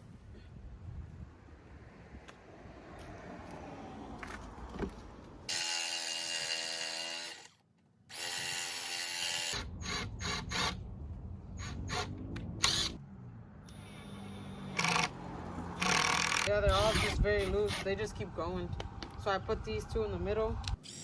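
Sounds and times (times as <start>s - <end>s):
cordless drill whining: 13.7s - 15.1s, 15.8s - 17.9s.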